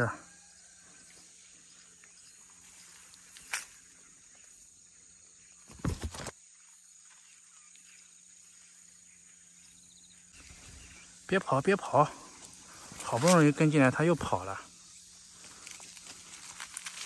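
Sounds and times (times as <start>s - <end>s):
high insect drone: 0.0s - 17.0s
dull thumps and rustles: 5.7s - 6.3s.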